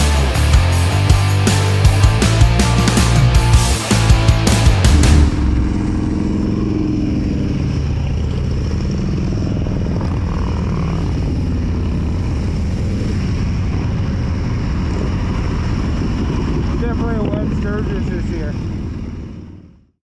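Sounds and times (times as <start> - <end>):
rock music: 0.0 - 6.7
motorcycle engine humming: 0.0 - 19.9.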